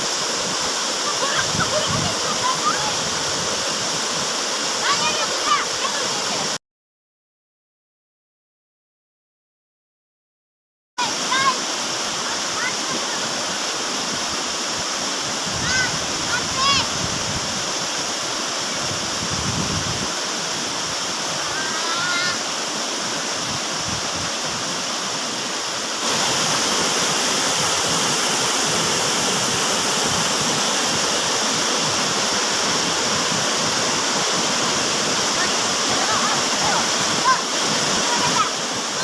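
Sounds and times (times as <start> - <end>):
waterfall rushing: 0.0 - 6.6, 11.0 - 39.0.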